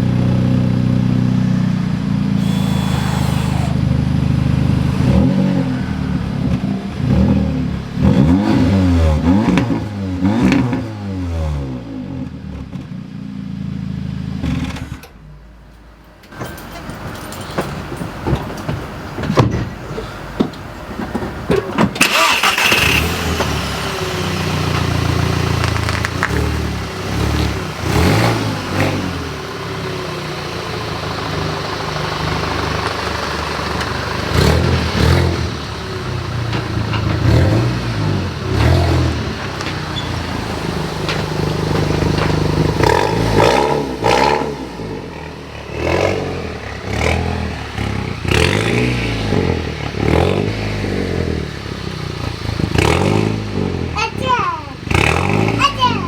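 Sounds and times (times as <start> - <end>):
car engine starting and revving: 0.0 - 15.6, 19.0 - 56.0
knocks and clunks around car: 16.2 - 22.0.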